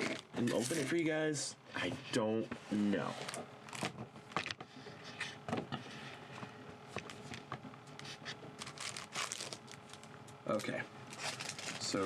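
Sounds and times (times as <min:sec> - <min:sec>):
trading cards rustling: 0:08.0 - 0:12.0.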